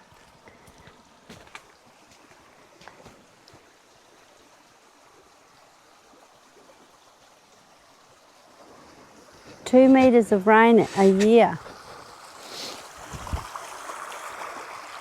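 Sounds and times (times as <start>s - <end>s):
creek babbling over stones: 0.0s - 15.0s.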